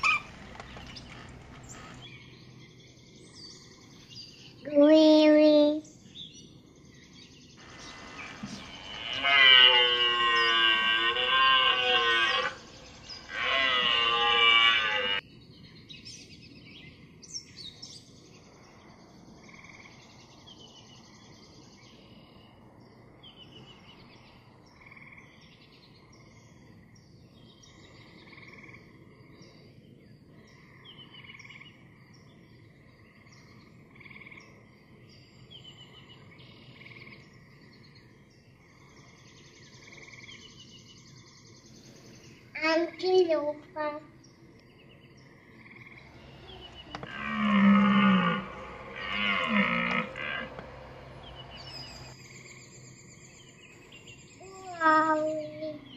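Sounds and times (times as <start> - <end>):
faint chirps and croaks: 0.0 - 55.9
deer bleating: 7.6 - 15.2, 46.2 - 52.1.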